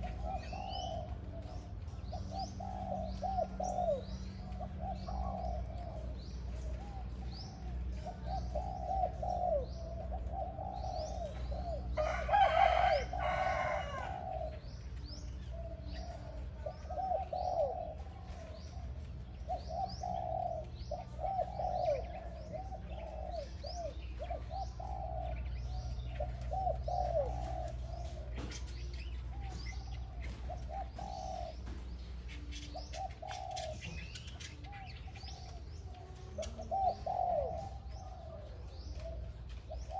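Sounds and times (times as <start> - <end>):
dove cooing: 0.0 - 39.9
small birds chirping: 0.0 - 39.9.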